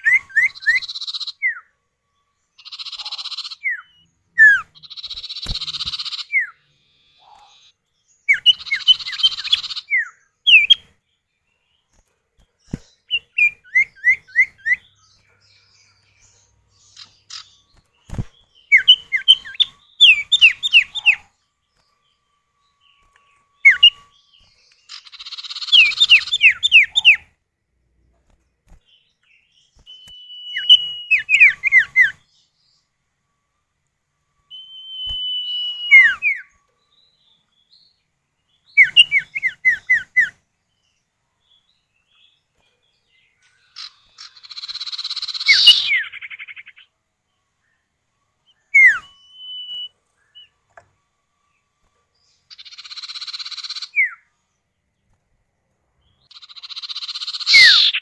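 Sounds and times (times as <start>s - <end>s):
bird whistled calls: 2.6s - 7.7s, 23.6s - 24.1s, 29.8s - 32.2s, 34.5s - 36.5s, 38.8s - 40.3s, 43.8s - 46.8s, 48.6s - 50.5s, 56.3s - 58.0s
bird rasping chatter: 56.3s - 58.0s.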